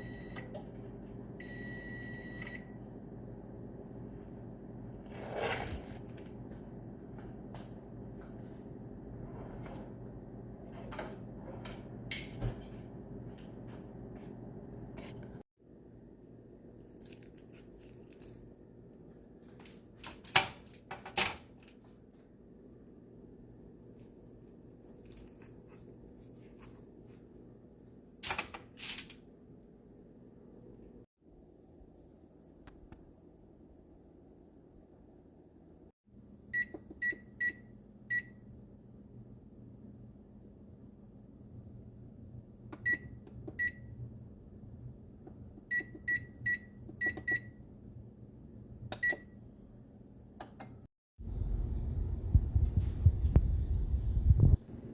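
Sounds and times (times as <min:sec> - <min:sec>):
steady low hum: 0:51.2 - 0:54.9.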